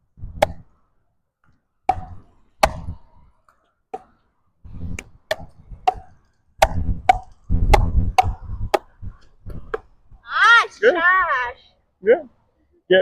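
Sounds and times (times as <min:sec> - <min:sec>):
wind buffeting microphone: 0:04.6 - 0:10.3
paddles striking ball: 0:05.0 - 0:08.9.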